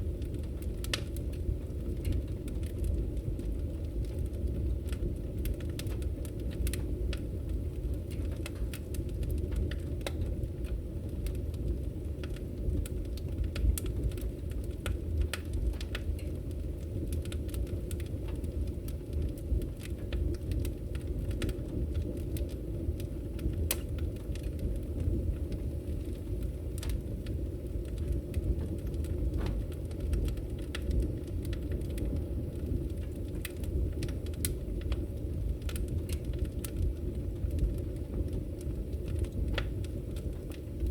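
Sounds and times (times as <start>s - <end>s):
fire crackles and pops: 0.0s - 40.9s
fireplace fire rumbling: 0.0s - 40.9s.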